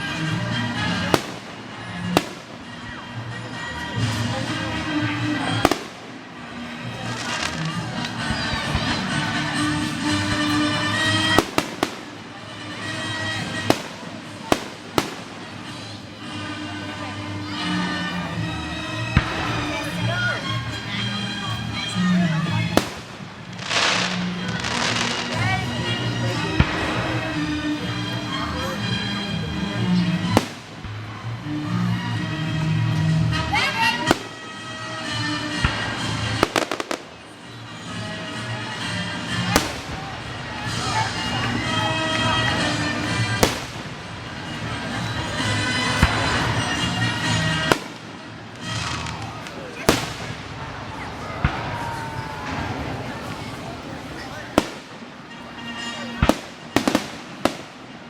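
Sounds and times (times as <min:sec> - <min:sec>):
music: 0:00.0 - 0:58.0
fireworks bangs: 0:00.4 - 0:03.0, 0:04.0 - 0:16.0, 0:22.4 - 0:25.6, 0:30.2 - 0:31.0, 0:34.1 - 0:34.5, 0:35.5 - 0:37.2, 0:39.4 - 0:58.0
fireworks bang: 0:43.4 - 0:44.0, 0:48.7 - 0:50.7, 0:56.2 - 0:57.8.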